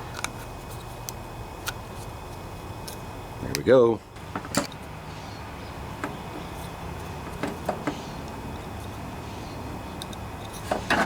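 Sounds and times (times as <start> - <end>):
steady low hum: 0.0 - 11.0
small parts clicking and tapping: 10.0 - 11.0.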